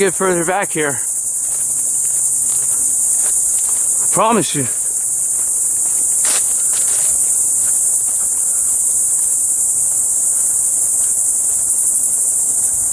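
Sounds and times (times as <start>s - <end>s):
insects chirring: 0.0s - 12.9s
light rustles: 6.0s - 8.2s.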